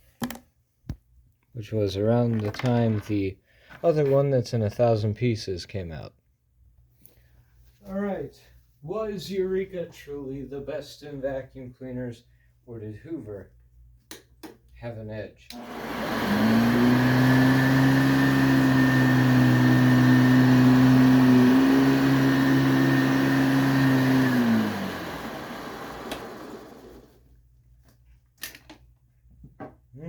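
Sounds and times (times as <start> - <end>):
vacuum cleaner motor running: 15.5 - 27.2
vacuum motor winding down: 15.5 - 27.2.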